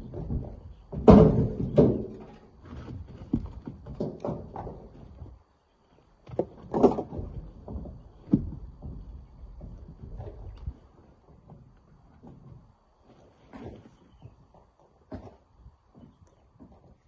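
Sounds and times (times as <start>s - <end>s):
rocks knocking and clattering: 0.0s - 5.4s, 6.2s - 14.3s.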